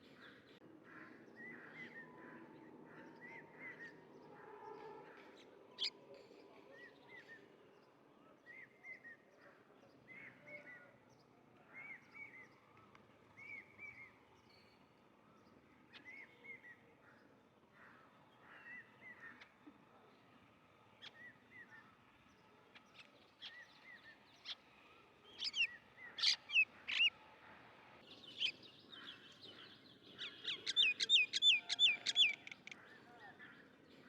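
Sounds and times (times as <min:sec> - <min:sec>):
faint bird chirping: 0:28.0 - 0:34.0.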